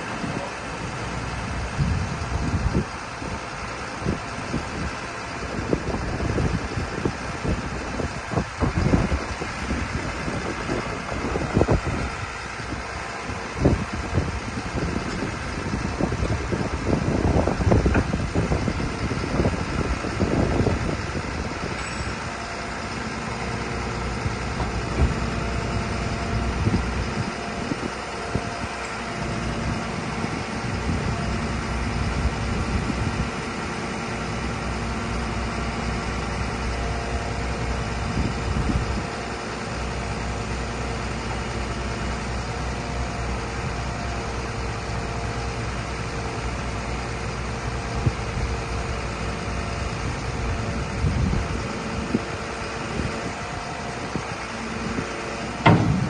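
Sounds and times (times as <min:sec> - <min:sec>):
truck diesel engine idling: 0:00.0 - 0:56.0
uneven loud rumbling: 0:50.1 - 0:56.0.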